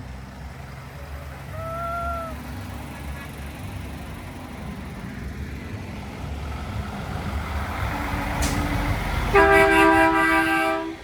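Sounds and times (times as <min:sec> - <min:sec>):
truck engine rumble: 0:00.0 - 0:11.0
air horn chord blast: 0:09.3 - 0:11.0.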